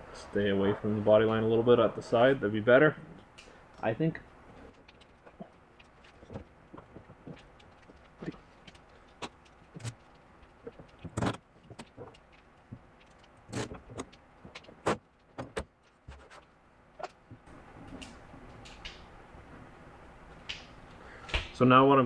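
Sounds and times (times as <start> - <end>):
sheet metal and tools knocking: 14.9 - 16.4.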